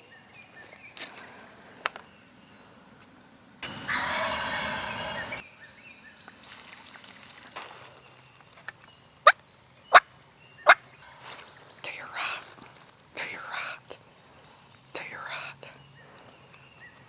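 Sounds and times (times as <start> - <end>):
turkey gobbling: 3.6 - 5.4.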